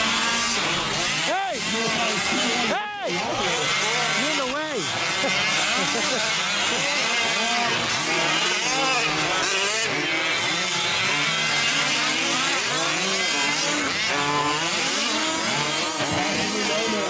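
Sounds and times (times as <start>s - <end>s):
small two-stroke engines revving: 0.0s - 17.0s.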